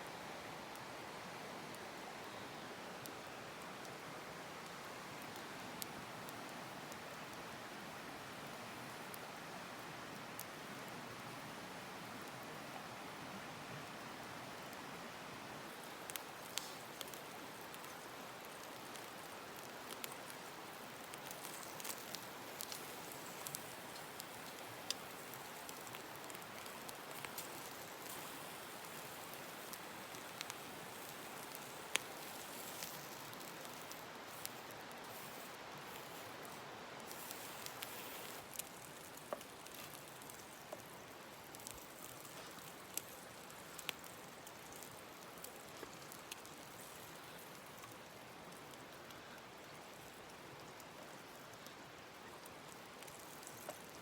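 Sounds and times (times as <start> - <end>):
firewood crackling and popping: 2.8 - 13.1, 13.7 - 54.0
fire hissing: 15.6 - 47.9.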